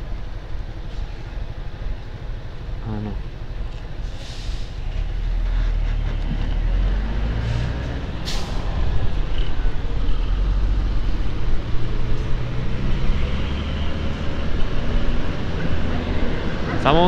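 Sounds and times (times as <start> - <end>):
short hiss: 4.0 - 4.9, 7.5 - 8.7.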